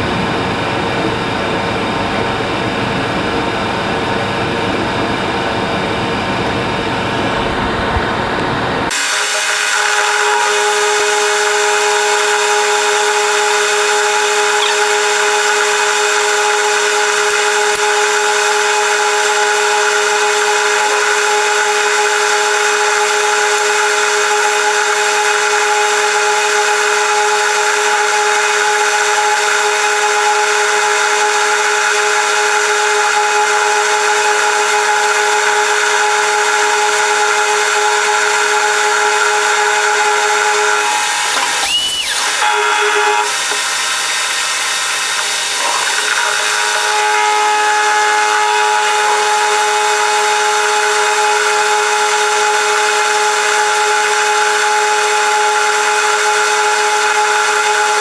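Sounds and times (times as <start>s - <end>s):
power tool whining: 8.9s - 27.5s, 38.1s - 56.3s.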